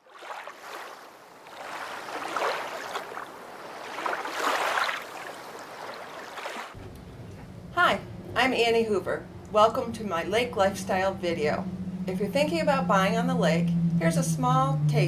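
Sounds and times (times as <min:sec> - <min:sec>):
water rushing and splashing: 0:00.0 - 0:06.8.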